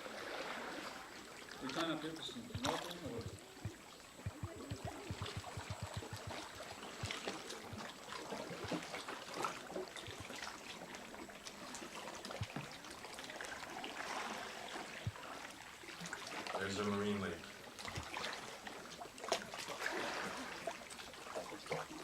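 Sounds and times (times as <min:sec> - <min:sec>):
drips and small splashes: 0:00.0 - 0:22.0
water lapping and trickling: 0:00.0 - 0:22.0
soft low thumps: 0:02.4 - 0:07.9.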